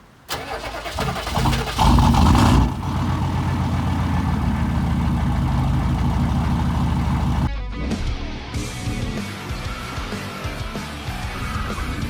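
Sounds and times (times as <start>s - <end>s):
engine revving and idling: 0.3s - 7.5s.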